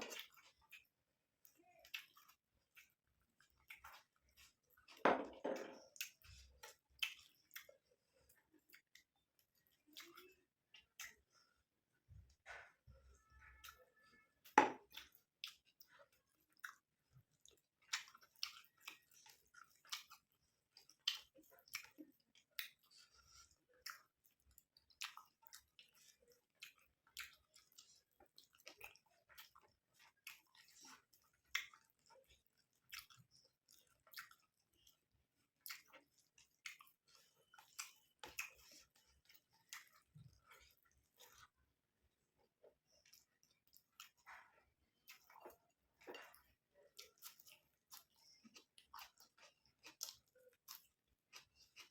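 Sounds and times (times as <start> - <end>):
mouth chewing food: 0.0 - 51.9.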